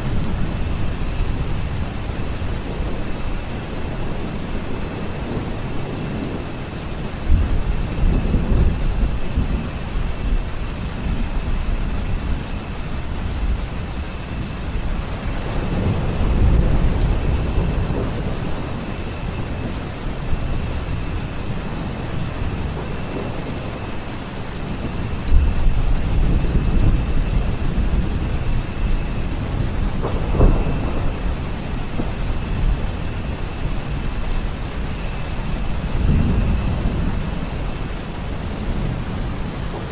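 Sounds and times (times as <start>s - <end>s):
steady rain: 0.0s - 39.9s
thunder rolling: 14.8s - 23.9s, 24.6s - 39.9s
thunder crack: 29.4s - 33.1s.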